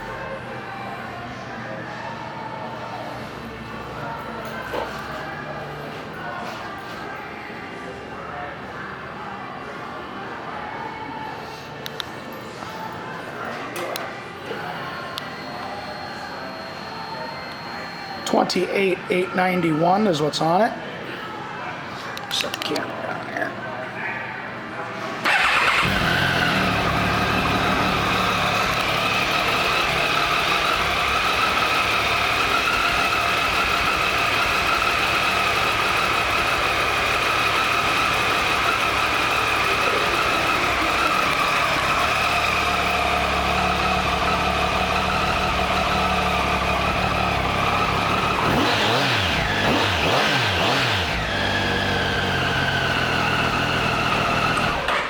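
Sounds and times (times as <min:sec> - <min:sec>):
engine revving: 0:25.3 - 0:54.9
motorcycle engine idling: 0:25.3 - 0:54.9.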